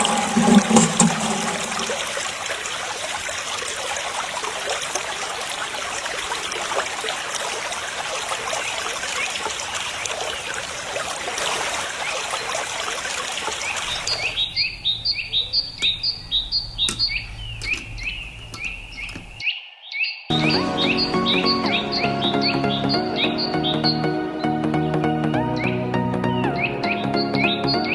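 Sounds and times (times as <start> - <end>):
water spraying and trickling: 0.0 - 19.4
bird chirping: 13.7 - 24.6
music: 20.3 - 27.9.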